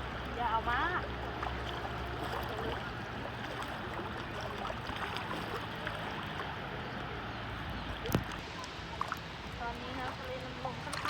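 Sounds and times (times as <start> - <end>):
seawater sloshing around legs: 0.0 - 11.0.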